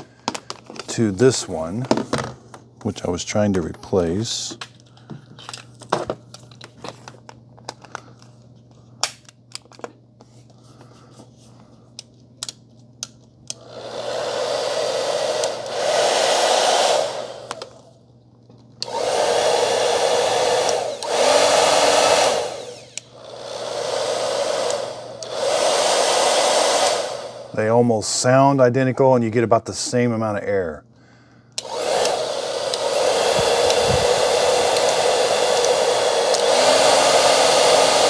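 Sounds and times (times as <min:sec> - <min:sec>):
hair dryer blowing: 0:00.0 - 0:04.6, 0:13.5 - 0:18.0, 0:18.8 - 0:28.4, 0:31.6 - 0:38.0.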